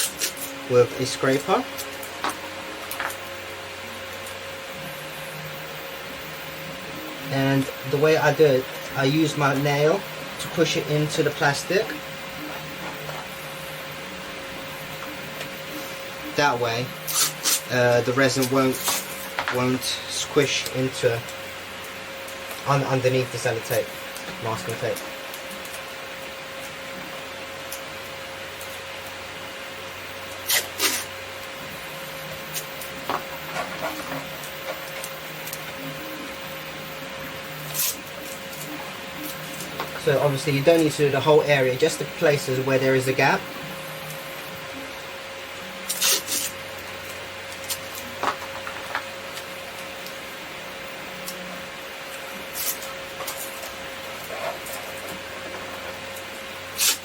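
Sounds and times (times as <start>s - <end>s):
sticky tape tearing off roll: 0.0s - 3.2s, 17.1s - 19.4s, 30.3s - 31.1s, 37.6s - 39.8s, 45.8s - 46.6s, 52.5s - 55.2s, 56.8s - 57.0s
faint hum: 0.0s - 57.0s.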